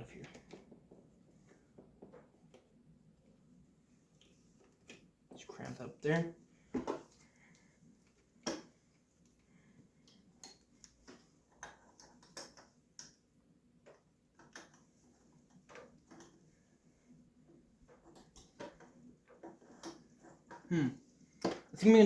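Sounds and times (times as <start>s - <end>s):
light clicks and taps of hand work: 6.7s - 16.5s.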